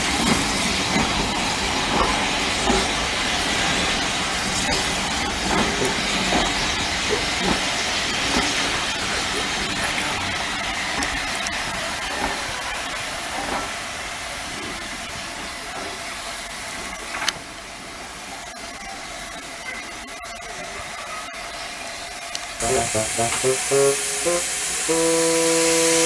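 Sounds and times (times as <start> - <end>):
steam locomotive hissing steam: 0.0 - 26.0.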